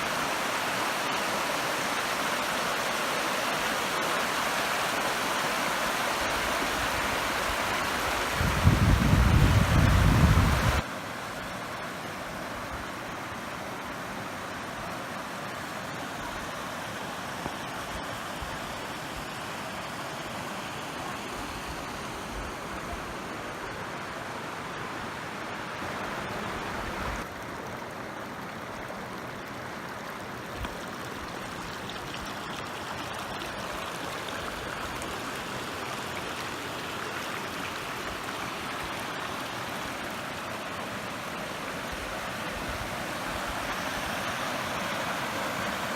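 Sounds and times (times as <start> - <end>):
waterfall rushing: 0.0 - 8.7, 23.2 - 45.9.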